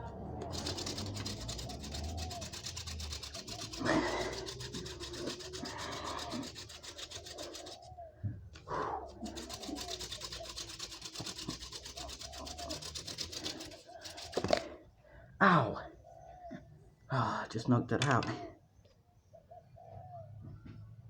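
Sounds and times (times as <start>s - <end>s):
hand drill rasping on wood: 0.0s - 8.0s, 8.6s - 14.7s.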